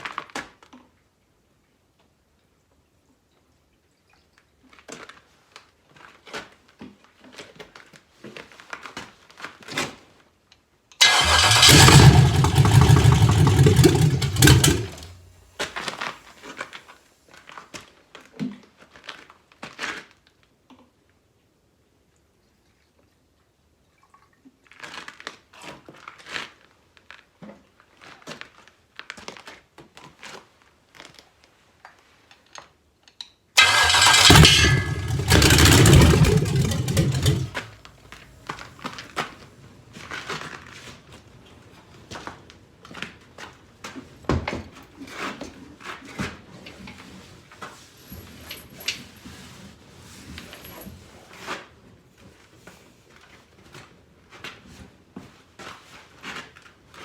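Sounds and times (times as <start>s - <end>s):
engine cranking and sputtering: 11.0s - 15.3s, 33.6s - 37.8s
engine firing and running: 11.0s - 15.3s, 33.6s - 37.7s.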